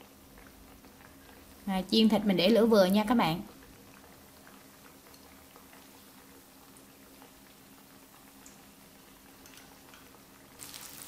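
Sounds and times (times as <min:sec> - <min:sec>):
deep-frying sizzle and crackles: 0:00.0 - 0:11.0.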